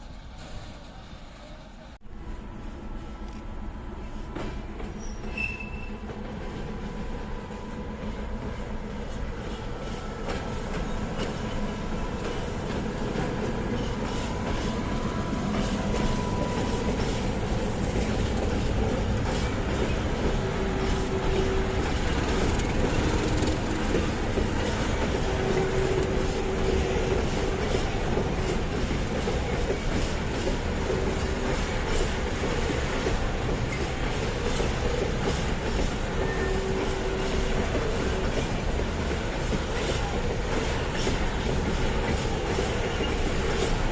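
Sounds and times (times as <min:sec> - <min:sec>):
train wheel squeals: 0:04.0 - 0:43.9
train wheels clattering on rails: 0:04.2 - 0:43.9.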